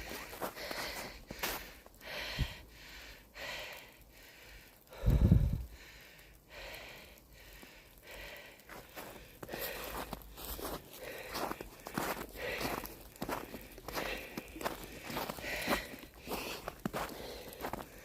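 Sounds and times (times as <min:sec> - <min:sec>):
footsteps in woods: 0:00.0 - 0:02.6, 0:07.6 - 0:18.0
breathing close to microphone: 0:00.0 - 0:18.0.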